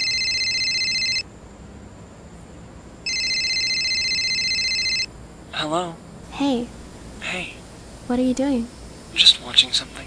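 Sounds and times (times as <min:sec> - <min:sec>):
cell phone ringing: 0:00.0 - 0:01.2, 0:03.1 - 0:05.1.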